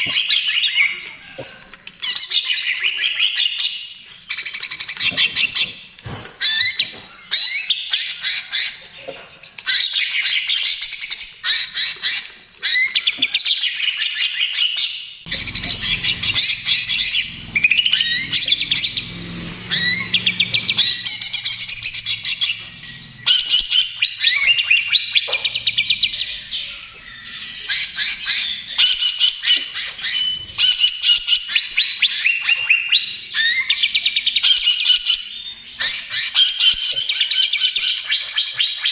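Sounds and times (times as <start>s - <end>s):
bird singing chattering and whistling: 15.3s - 29.1s.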